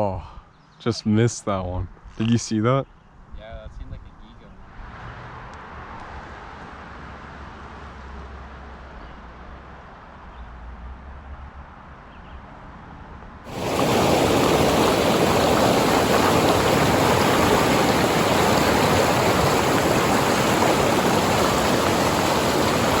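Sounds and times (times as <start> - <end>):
fast-flowing creek water: 13.5 - 23.0.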